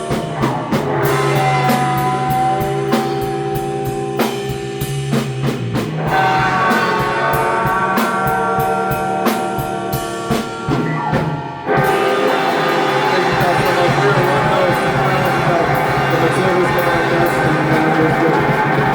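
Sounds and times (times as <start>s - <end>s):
electric guitar chords: 0.0s - 18.9s
live rock band playing: 0.0s - 18.9s
cymbal strikes: 11.4s - 18.9s.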